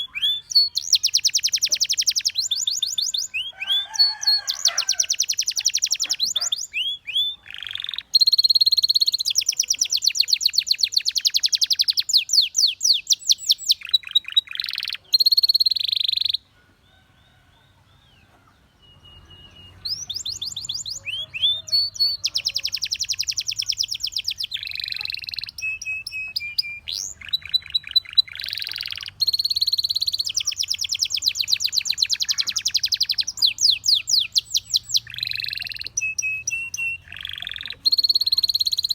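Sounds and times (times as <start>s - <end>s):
canary singing: 0.0s - 16.5s, 17.2s - 38.9s.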